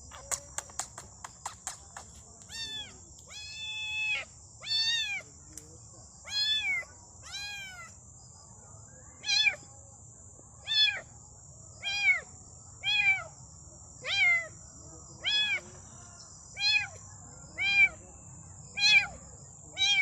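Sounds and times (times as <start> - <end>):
kitten meowing: 2.5 - 5.2.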